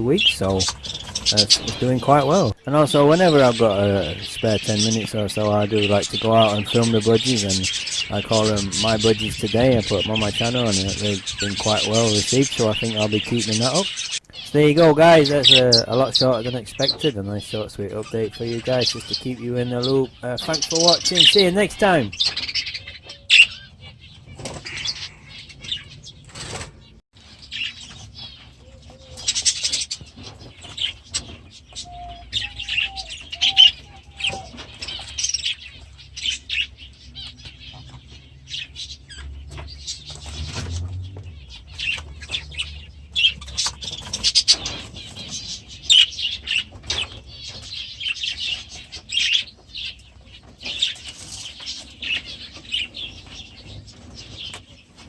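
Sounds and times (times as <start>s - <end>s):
budgerigars chirping and chattering: 0.0s - 55.0s
wings flapping: 26.2s - 26.9s.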